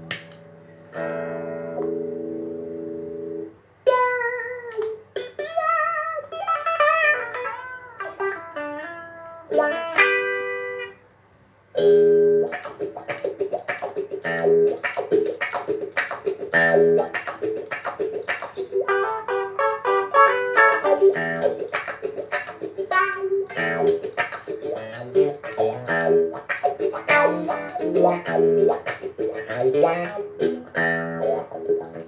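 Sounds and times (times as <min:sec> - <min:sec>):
electric guitar playing: 0:00.0 - 0:11.2, 0:11.8 - 0:32.0.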